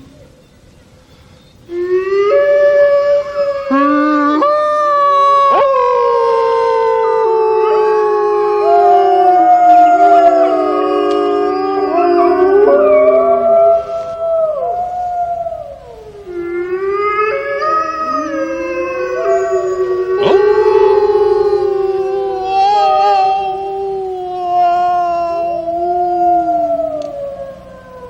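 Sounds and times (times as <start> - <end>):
wolves howling: 1.7 - 28.0.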